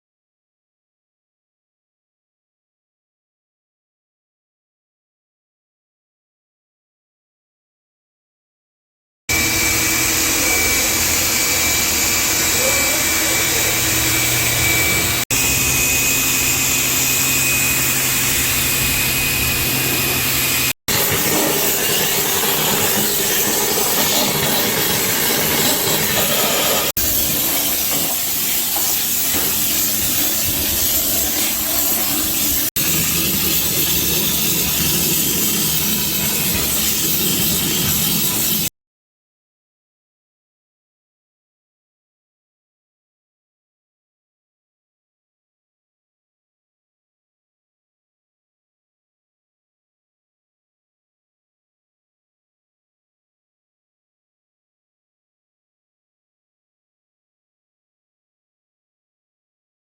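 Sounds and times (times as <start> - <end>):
low hum: 9.3 - 27.4
cleaning equipment hissing: 9.3 - 38.7
motor whine: 9.3 - 38.7.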